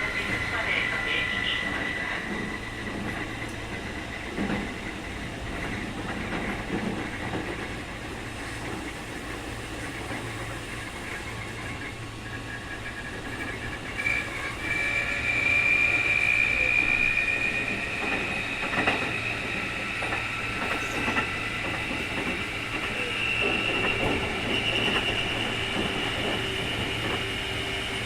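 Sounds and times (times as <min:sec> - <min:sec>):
electric train running rumble: 0:00.0 - 0:28.0
high whistle: 0:14.0 - 0:21.6, 0:22.8 - 0:27.8.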